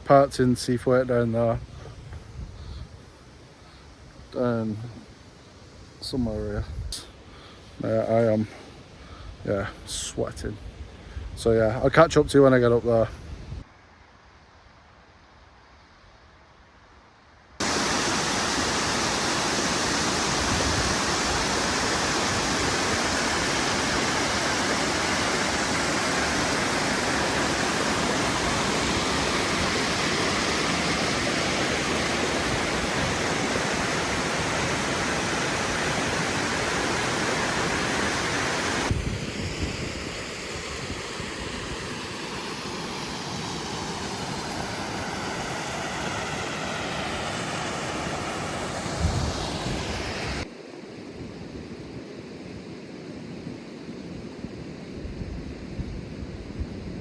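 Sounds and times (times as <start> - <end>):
waterfall rushing: 17.6 - 50.5.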